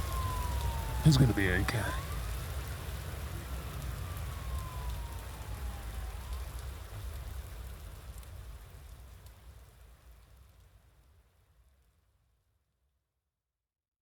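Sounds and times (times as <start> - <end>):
distant emergency siren wailing: 0.0 - 8.5.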